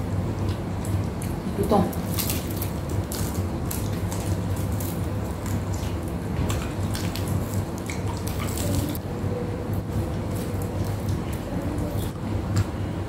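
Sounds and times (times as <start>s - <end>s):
crunching and chewing: 0.4s - 9.0s.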